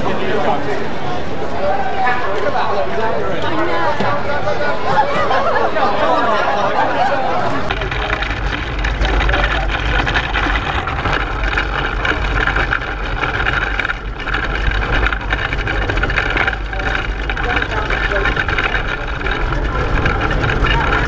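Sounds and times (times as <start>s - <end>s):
pedal car rumbling over road: 7.2s - 21.0s.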